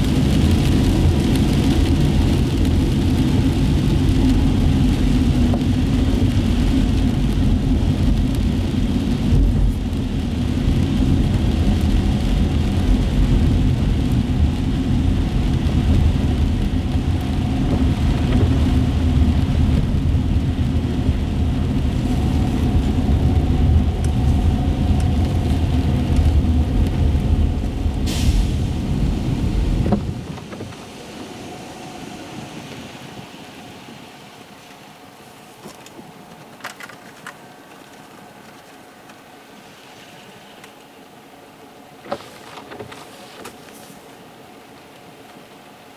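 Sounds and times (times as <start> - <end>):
car road noise on wet pavement: 0.0 - 45.9
brief hiss: 28.1 - 28.6.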